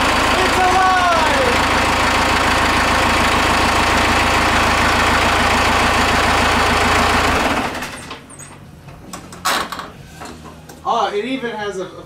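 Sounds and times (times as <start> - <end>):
diesel engine idling: 0.0 - 8.1.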